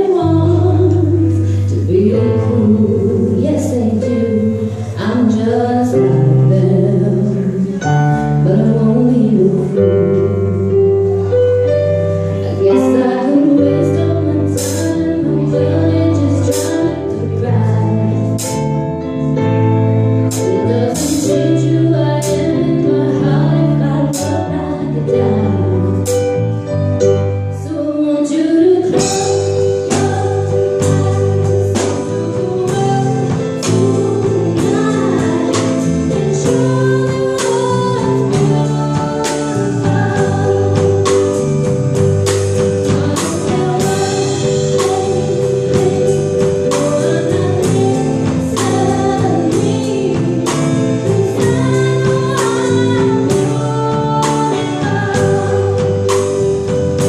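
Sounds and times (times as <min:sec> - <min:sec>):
bass line: 0:00.0 - 0:57.0
live pop band playing: 0:00.0 - 0:57.0.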